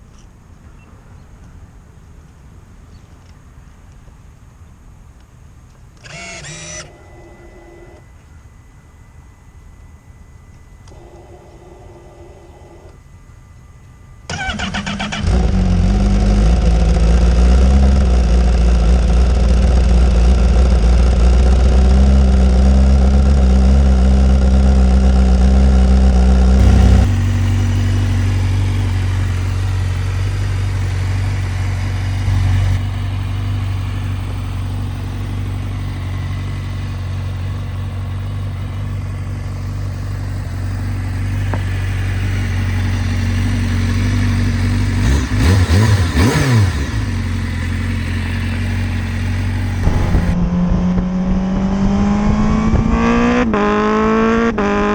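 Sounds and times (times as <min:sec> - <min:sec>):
motorcycle engine starting and idling: 0:14.2 - 0:54.9.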